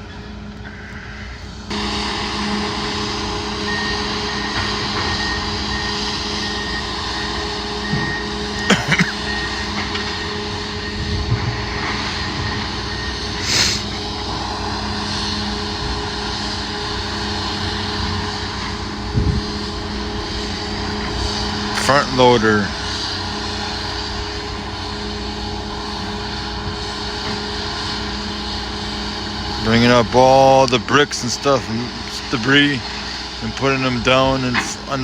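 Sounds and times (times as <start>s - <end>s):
diesel engine running: 0.0s - 35.0s
backup alarm beeping: 1.7s - 21.8s.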